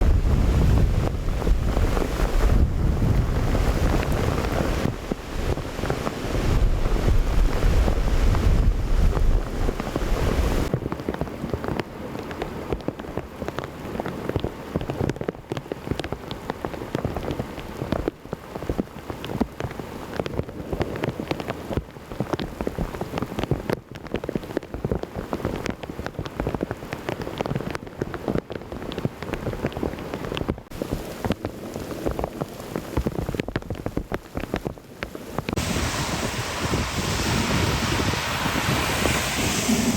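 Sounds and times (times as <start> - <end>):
heavy rain: 0.0 - 10.7, 30.8 - 39.9
raindrops ticking: 10.9 - 35.6
deep low rumble: 35.6 - 39.9.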